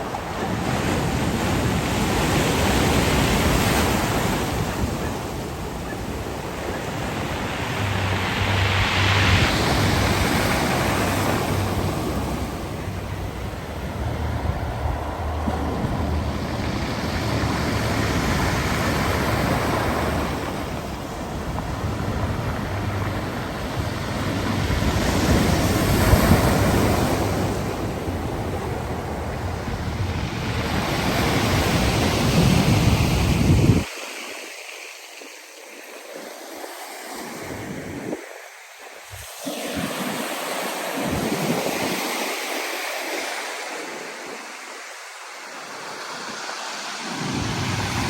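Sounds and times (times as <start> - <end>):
wind buffeting microphone: 0.0 - 33.9
waves breaking on shore: 0.0 - 48.0
low rumble: 11.5 - 18.8.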